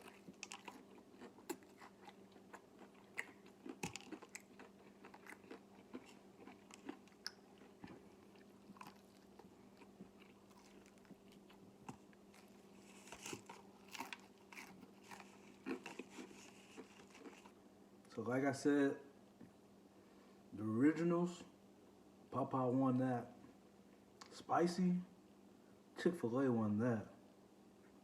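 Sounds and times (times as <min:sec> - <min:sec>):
crunching fried chicken: 0:00.0 - 0:17.6.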